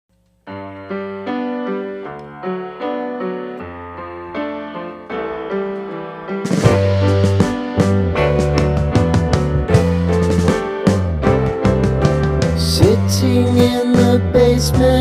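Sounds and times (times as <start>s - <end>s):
piano-like keyboard melody: 0.4s - 15.0s
drums with crash cymbal: 6.5s - 8.4s.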